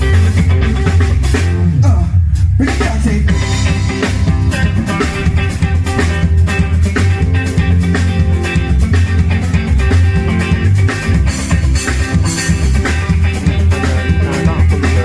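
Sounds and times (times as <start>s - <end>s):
drum kit: 0.0s - 15.0s
guitar: 0.0s - 15.0s
steady bass line: 0.0s - 15.0s
falling guitar slide: 3.4s - 8.6s.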